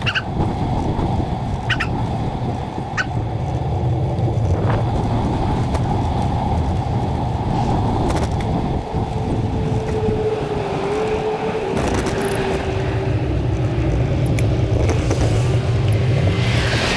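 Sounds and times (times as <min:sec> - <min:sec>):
road traffic: 0:00.0 - 0:16.9.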